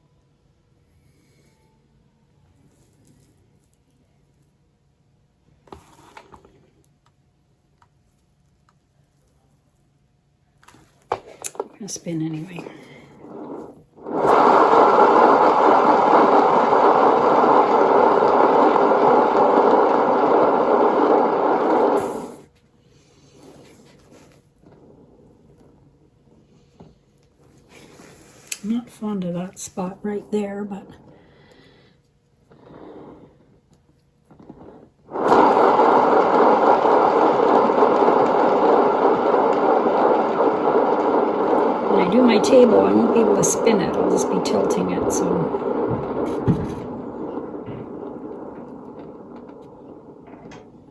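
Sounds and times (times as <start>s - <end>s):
hairdryer blowing: 11.1s - 22.4s, 35.1s - 48.8s
turntable rolling rumble: 11.1s - 22.5s, 23.4s - 50.9s.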